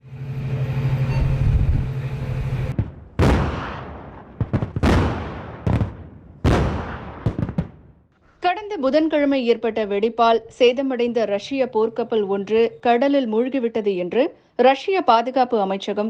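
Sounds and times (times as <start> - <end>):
low rumble with hum: 0.0 - 3.4
sharp gunshot cracks: 2.7 - 7.9
loud gunfire blasts: 2.7 - 8.0.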